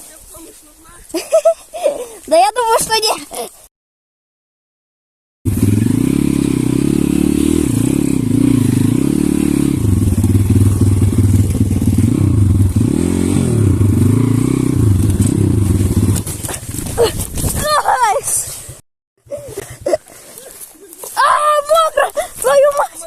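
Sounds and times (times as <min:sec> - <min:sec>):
pit bike engine revving: 0:05.5 - 0:16.7.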